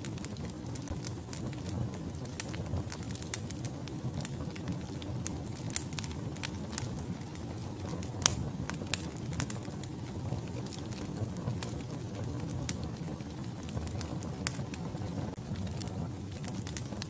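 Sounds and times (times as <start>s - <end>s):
burning logs crackling and popping: 0.0s - 17.0s
low rumble of flames: 0.0s - 17.0s.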